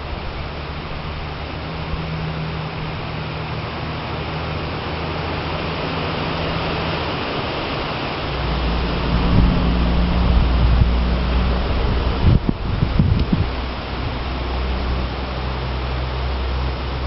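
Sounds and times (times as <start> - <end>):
strong wind rushing through trees: 0.0 - 17.0.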